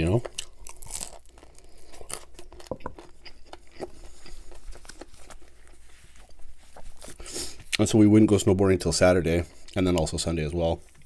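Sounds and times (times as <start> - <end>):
chewing and mouth clicks: 0.2 - 7.8.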